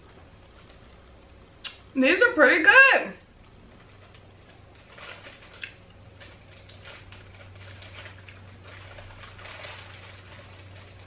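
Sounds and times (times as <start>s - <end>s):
person crunching hard candy: 4.5s - 11.0s.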